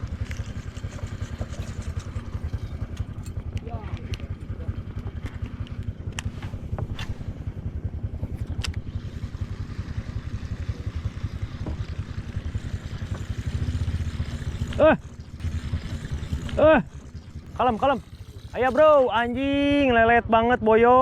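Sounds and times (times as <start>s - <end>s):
boat engine chugging: 0.0s - 21.0s.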